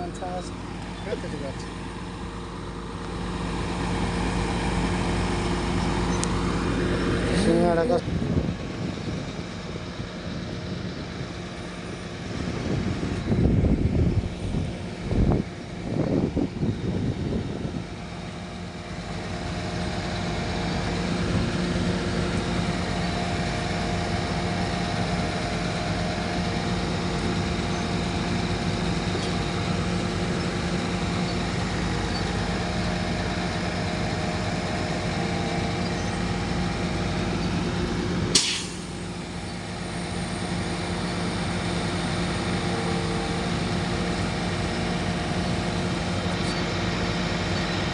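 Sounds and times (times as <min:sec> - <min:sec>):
vehicle engine droning: 0:00.0 - 0:47.9
sharp click: 0:38.4 - 0:38.9.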